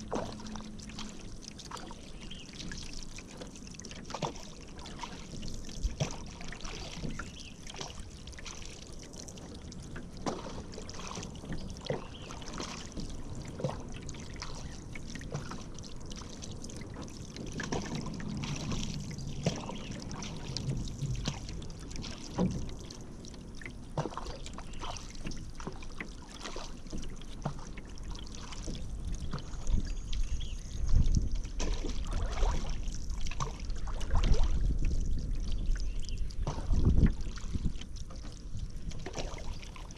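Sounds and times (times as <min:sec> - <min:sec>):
paddle splashing in water: 0:00.0 - 0:39.9
low rumble: 0:15.8 - 0:23.9.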